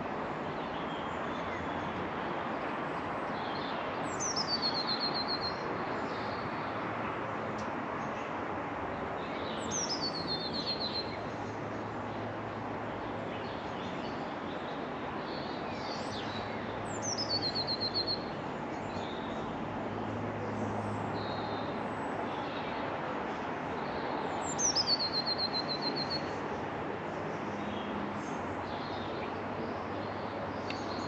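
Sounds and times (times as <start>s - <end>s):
songbird singing with trill: 3.4s - 6.5s, 9.2s - 11.2s, 13.3s - 19.4s, 23.9s - 26.4s.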